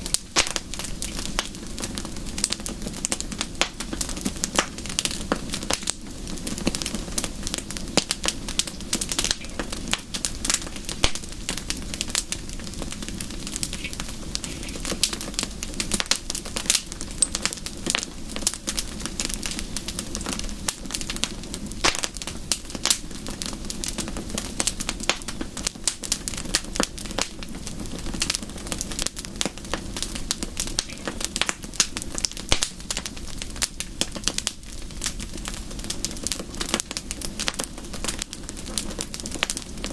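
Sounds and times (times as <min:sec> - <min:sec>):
fire crackling and popping: 0:00.0 - 0:39.9
low fire rumble: 0:00.0 - 0:39.9.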